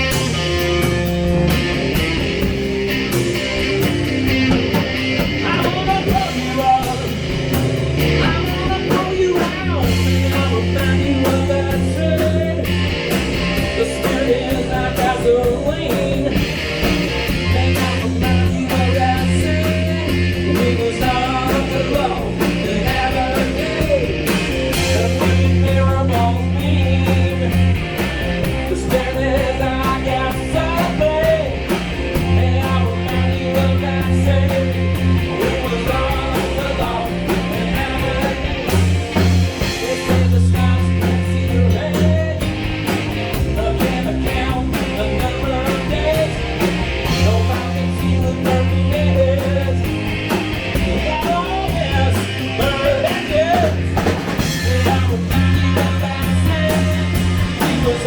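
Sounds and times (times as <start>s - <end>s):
bass notes: 0.0s - 58.0s
drum kit: 0.0s - 58.0s
electric guitar: 0.0s - 58.0s.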